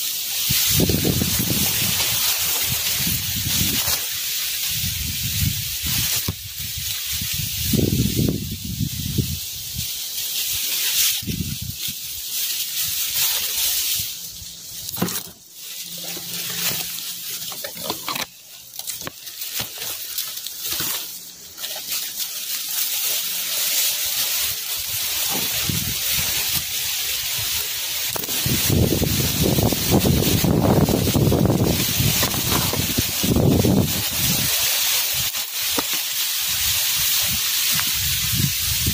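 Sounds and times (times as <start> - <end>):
strong wind in tree foliage: 0.0 - 38.9
wind buffeting microphone: 4.7 - 9.8, 28.3 - 34.5.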